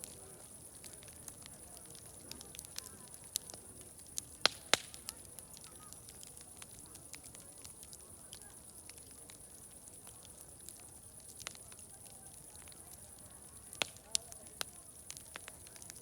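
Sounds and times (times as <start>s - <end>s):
murmur of distant voices: 0.0s - 16.0s
wood fire crackling: 0.0s - 16.0s.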